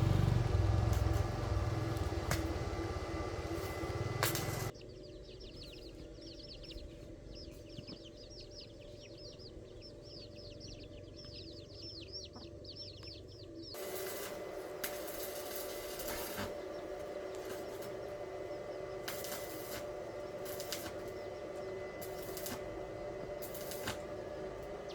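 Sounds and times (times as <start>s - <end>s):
steady hiss: 0.0s - 4.7s, 13.8s - 24.6s
faint hum: 0.0s - 7.8s, 8.6s - 24.9s
birds chirping rapidly: 0.0s - 24.9s.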